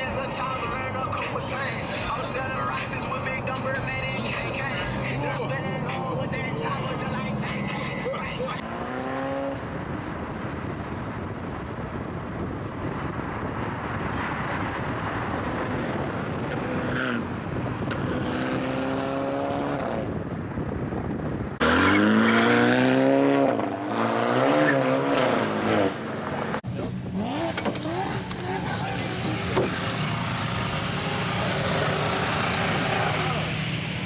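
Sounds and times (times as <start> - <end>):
car engines revving: 0.0 - 34.0
loud engine revving close by: 1.8 - 9.9, 14.2 - 20.2, 21.6 - 34.0.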